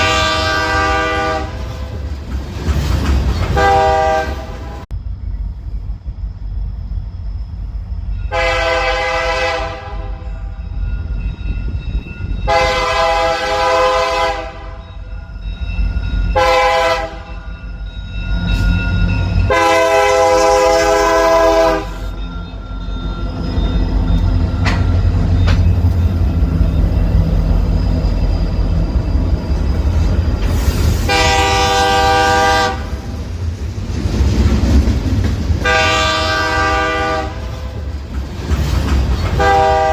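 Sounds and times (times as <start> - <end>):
locomotive horn blasts: 0.0 - 1.9, 3.6 - 4.8, 8.3 - 10.5, 12.5 - 14.9, 16.3 - 17.3, 19.5 - 22.1, 31.0 - 33.1, 35.6 - 37.8, 39.4 - 39.9
passing train rumble: 0.0 - 39.9.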